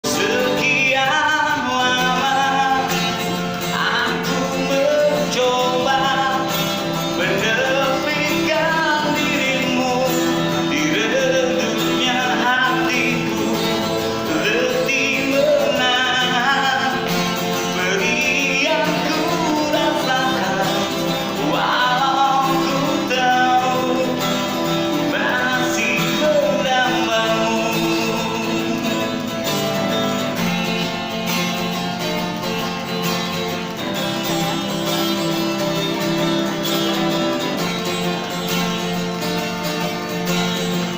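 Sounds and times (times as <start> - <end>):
man singing a pop ballad: 0.0 - 30.8
acoustic guitar: 0.0 - 40.9.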